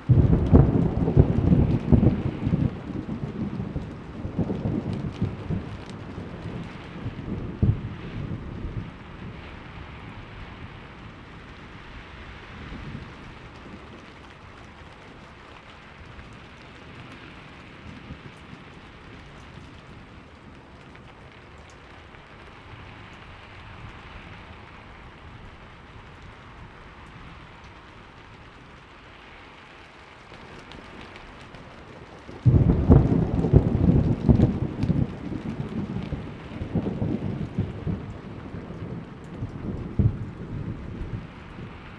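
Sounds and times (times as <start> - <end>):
loud thunder clap: 0.0 - 8.9, 32.4 - 41.8
distant thunder rumbles: 0.0 - 11.8, 30.3 - 41.9
steady rain falling: 0.0 - 41.9.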